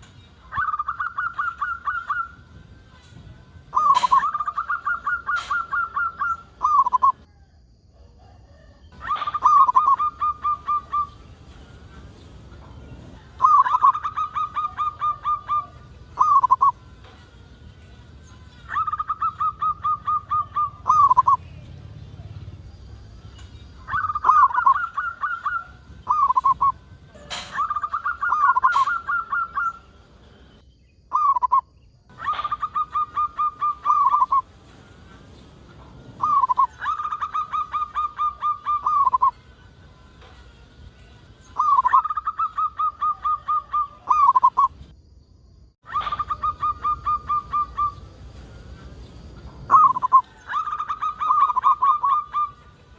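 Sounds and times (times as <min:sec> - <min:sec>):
dove cooing: 0:00.5 - 0:02.4, 0:03.7 - 0:07.2, 0:08.2 - 0:11.2, 0:13.1 - 0:16.8, 0:18.6 - 0:21.4, 0:23.8 - 0:29.9, 0:31.1 - 0:34.5, 0:36.2 - 0:39.4, 0:41.6 - 0:44.7, 0:45.9 - 0:52.7.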